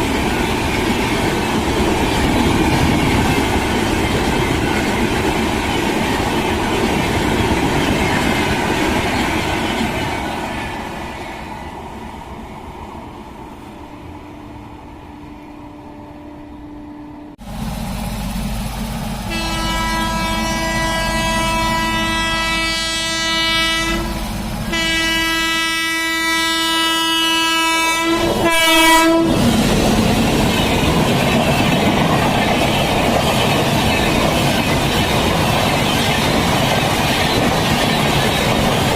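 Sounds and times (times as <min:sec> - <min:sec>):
train coaches rushing and clattering: 0:00.0 - 0:15.5, 0:17.5 - 0:38.9
train horn blasts and toots: 0:19.3 - 0:29.4.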